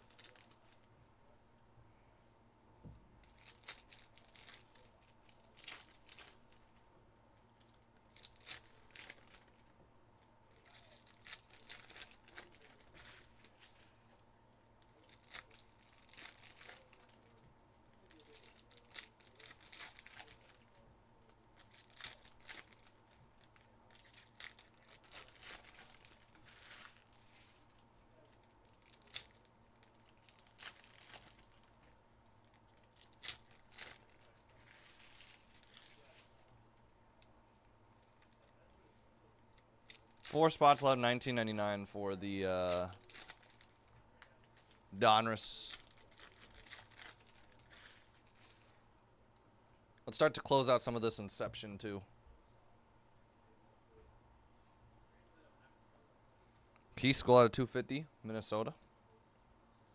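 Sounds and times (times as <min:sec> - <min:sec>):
wrapper crinkling and tearing: 0:00.0 - 0:00.9, 0:03.2 - 0:06.9, 0:07.5 - 0:09.6, 0:10.5 - 0:14.0, 0:14.8 - 0:36.5, 0:39.5 - 0:40.8, 0:42.6 - 0:48.8.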